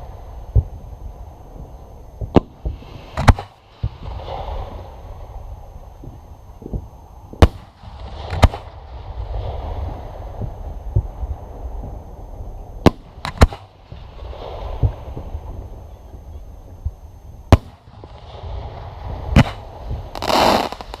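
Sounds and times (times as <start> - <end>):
fireworks crackling and rumbling: 0.0 - 21.0
fireworks bangs: 7.4 - 10.4, 17.5 - 21.0.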